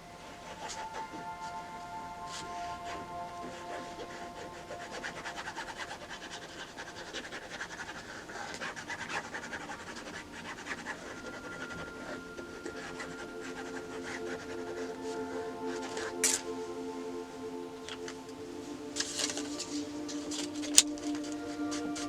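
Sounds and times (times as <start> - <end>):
pen scratching on paper: 2.6 - 16.1.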